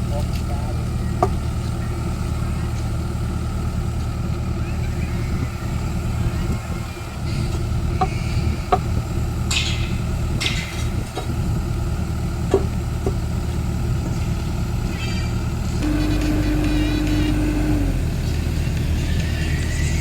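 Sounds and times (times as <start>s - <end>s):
excavator diesel engine running: 0.0s - 20.0s
metallic clanks: 8.0s - 11.4s.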